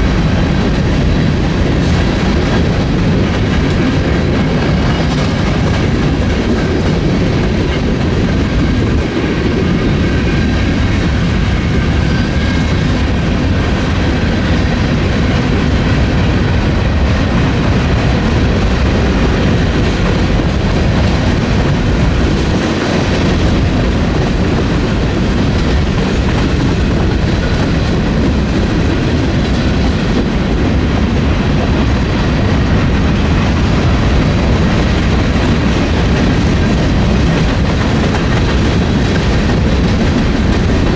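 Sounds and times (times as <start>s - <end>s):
freight train rolling past: 0.0s - 40.9s.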